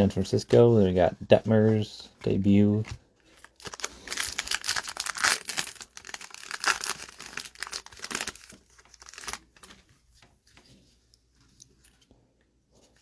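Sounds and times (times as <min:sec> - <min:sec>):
foil wrapper crinkling and tearing: 0:02.8 - 0:09.8.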